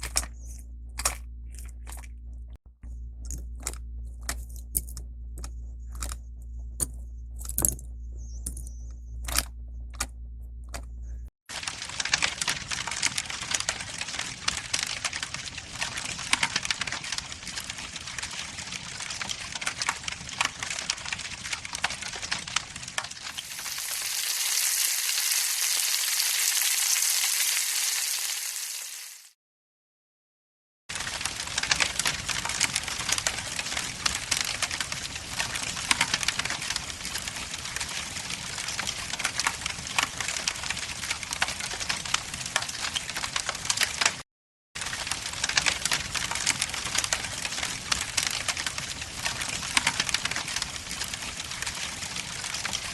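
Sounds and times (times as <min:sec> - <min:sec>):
low steady hum: 0:00.0 - 0:12.1.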